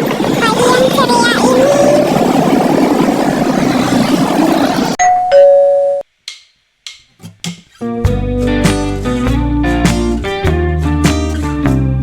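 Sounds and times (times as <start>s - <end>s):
steady noisy background: 0.0s - 5.0s
two-note doorbell chime: 5.0s - 6.0s.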